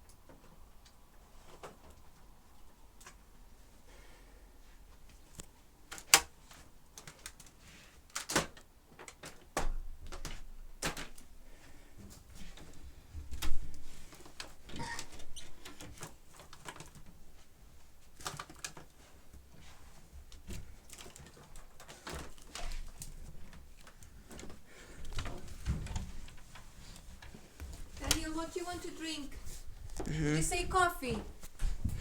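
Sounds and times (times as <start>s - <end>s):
clicks and knocks of handling: 5.1s - 11.3s, 12.0s - 17.2s, 17.8s - 28.2s.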